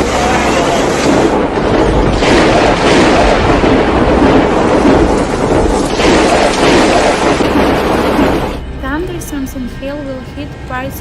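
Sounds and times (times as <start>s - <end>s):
hail and rain pelting down: 0.0s - 8.6s.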